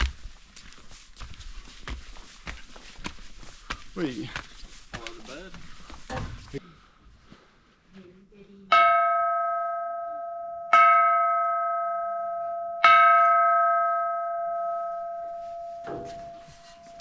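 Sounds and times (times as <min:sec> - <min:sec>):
short scuffle: 0:00.0 - 0:07.6.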